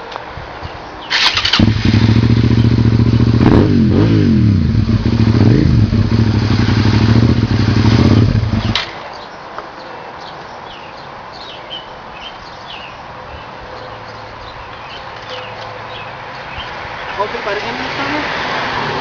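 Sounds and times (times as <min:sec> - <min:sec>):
motorcycle engine idling and revving: 0:01.1 - 0:09.0.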